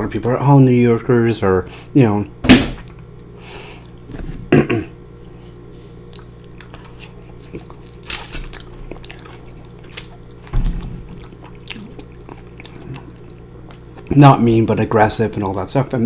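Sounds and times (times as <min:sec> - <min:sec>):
chewing with wet mouth sounds: 0:05.8 - 0:14.2.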